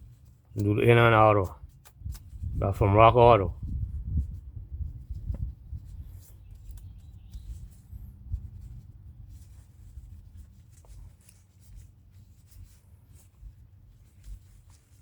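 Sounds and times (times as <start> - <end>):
paper towel rubbing and scraping: 0.0 - 15.0.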